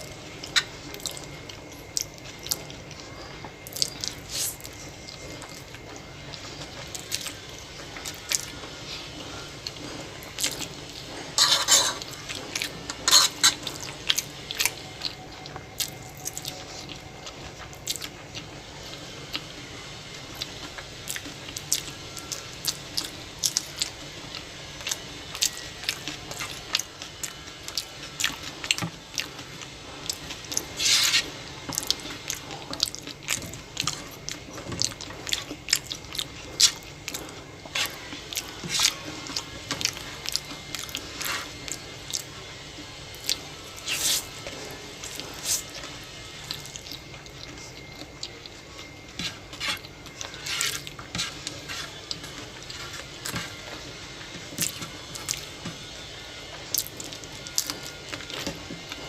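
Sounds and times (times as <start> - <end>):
person chewing: 0.0 - 19.7, 20.3 - 56.0, 56.7 - 59.0.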